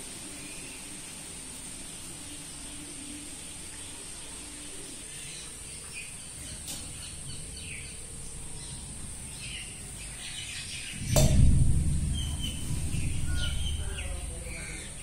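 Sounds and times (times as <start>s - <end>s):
birds chirping faintly: 0.0s - 15.0s
steady high hiss: 0.0s - 15.0s
low background rumble: 5.7s - 15.0s.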